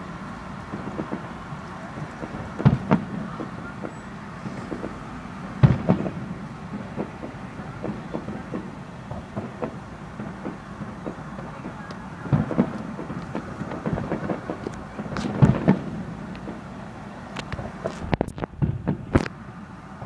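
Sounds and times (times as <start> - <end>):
fireworks booming and popping: 0.0 - 19.4
rumbling background: 0.0 - 20.0.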